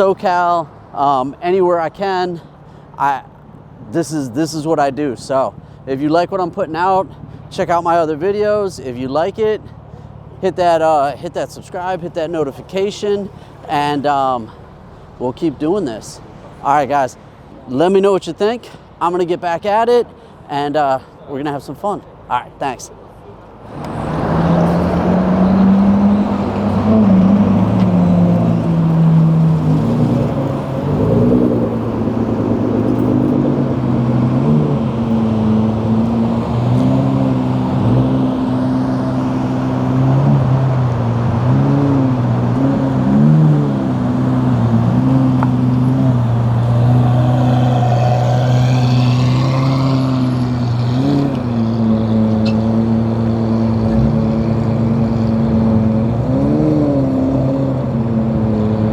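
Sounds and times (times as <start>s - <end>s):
car engines idling: 23.0s - 56.3s
engine revving: 23.7s - 58.9s.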